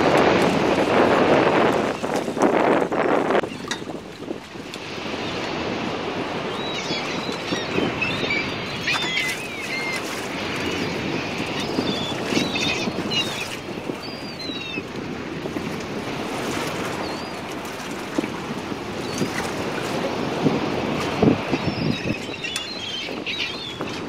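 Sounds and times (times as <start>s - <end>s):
boat engine rumble: 0.0s - 24.0s
water: 0.0s - 24.0s
birds chirping: 6.4s - 14.9s, 21.2s - 24.0s.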